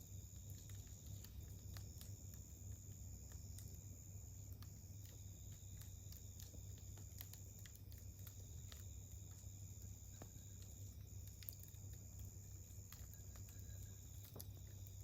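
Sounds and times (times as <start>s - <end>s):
campfire crackling: 0.0s - 15.0s
high-pitched insect trill: 8.2s - 15.0s.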